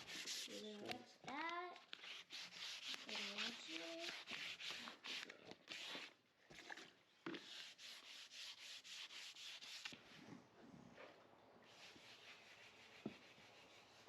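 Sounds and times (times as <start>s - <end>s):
hand wet-sanding strokes: 0.0s - 1.0s, 1.9s - 6.2s, 7.4s - 10.0s, 11.6s - 14.0s.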